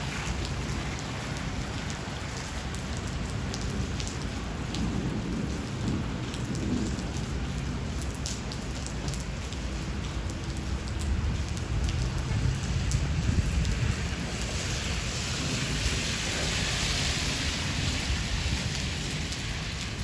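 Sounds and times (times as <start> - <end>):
steady rain: 0.0 - 20.0
low rumble of thunder: 3.2 - 16.5.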